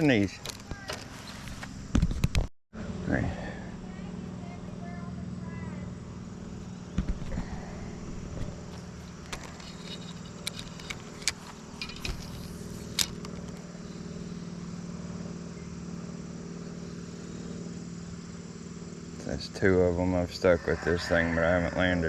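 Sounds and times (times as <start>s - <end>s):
low mechanical hum: 0.0s - 22.0s
light rattles: 6.6s - 13.8s.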